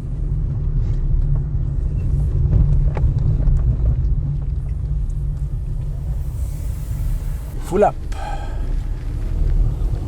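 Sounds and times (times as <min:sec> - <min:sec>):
car cabin low rumble: 0:00.0 - 0:10.0.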